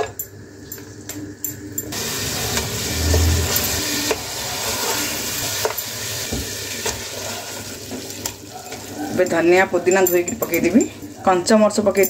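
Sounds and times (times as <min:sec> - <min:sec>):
chicken sizzling in hot oil: 0:01.9 - 0:09.9.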